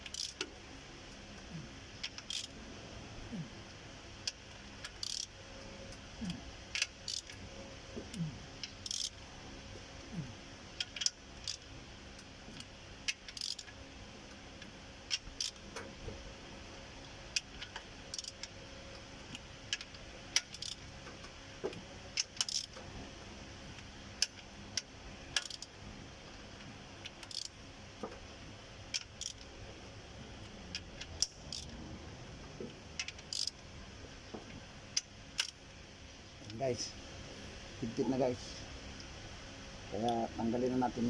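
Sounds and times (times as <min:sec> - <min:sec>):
wrench clinking on metal: 0:33.3 - 0:33.5.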